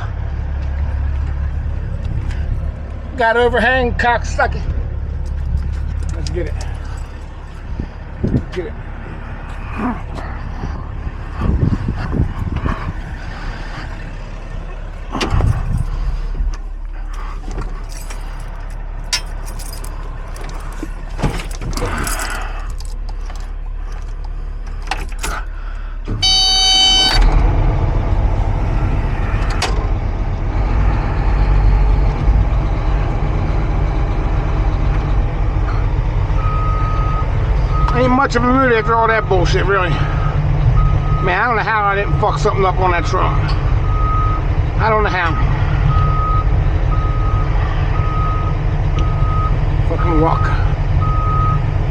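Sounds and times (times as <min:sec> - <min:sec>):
excavator diesel engine running: 0:00.0 - 0:51.9
metal clanks and knocks: 0:17.5 - 0:25.5
beep: 0:26.2 - 0:27.2.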